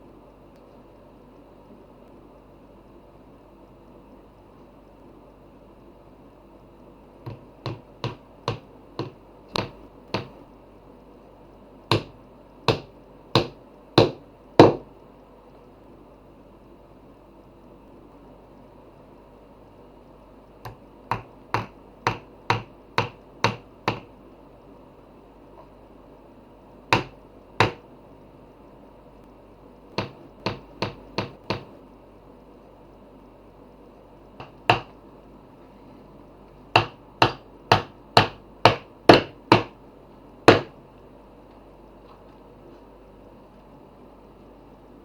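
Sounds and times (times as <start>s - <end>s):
hammer striking wood: 7.3s - 10.4s, 11.9s - 14.8s, 20.7s - 24.1s, 27.0s - 27.8s, 30.0s - 31.7s, 34.4s - 34.9s, 36.8s - 39.8s, 40.5s - 40.7s.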